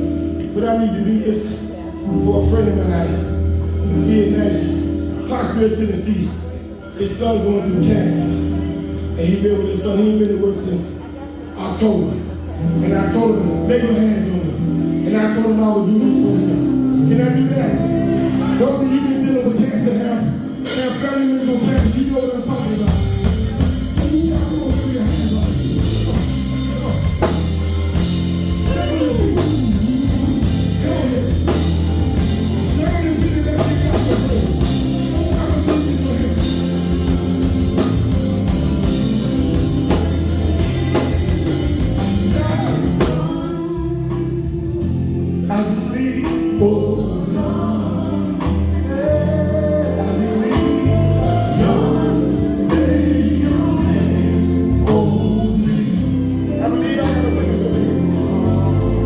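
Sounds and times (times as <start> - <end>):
band with drums bass and guitar: 16.0 - 59.0
gospel group singing: 16.2 - 59.0.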